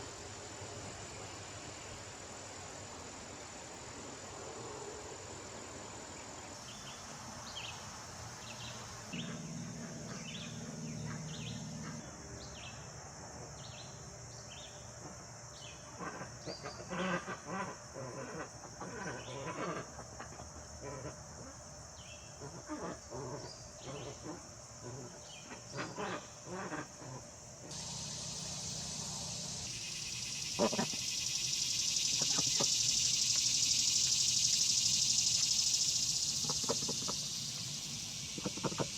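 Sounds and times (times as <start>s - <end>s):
insects droning: 0.0s - 38.9s
animal calls: 25.8s - 37.7s
bird chirping: 27.7s - 38.9s.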